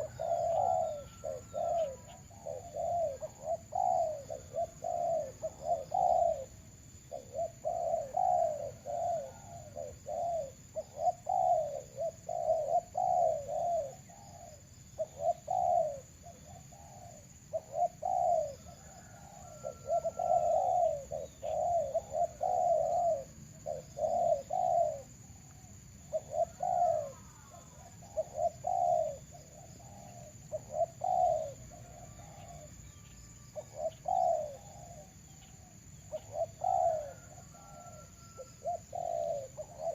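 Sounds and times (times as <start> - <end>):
birds calling: 0.0 - 6.5, 7.1 - 39.9
doves cooing: 0.0 - 39.9
faint small bird chirps: 0.0 - 39.9.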